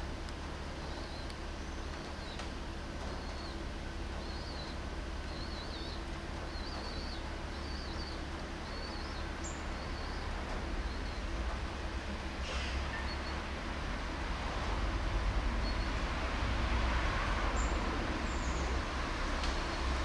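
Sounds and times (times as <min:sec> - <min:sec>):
songbird warbling: 0:04.2 - 0:11.3.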